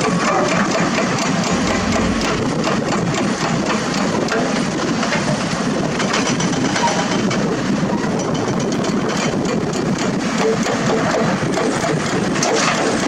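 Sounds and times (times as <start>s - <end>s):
diesel machinery running: 0.0s - 7.9s.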